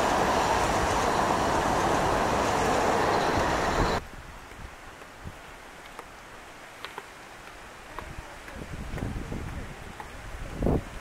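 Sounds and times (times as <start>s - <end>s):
passenger train passing: 0.0s - 4.0s.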